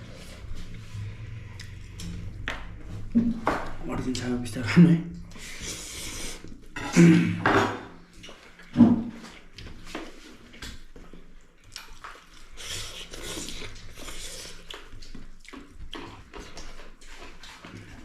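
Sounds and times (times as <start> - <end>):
chewing: 0.1 - 2.7, 8.1 - 18.0.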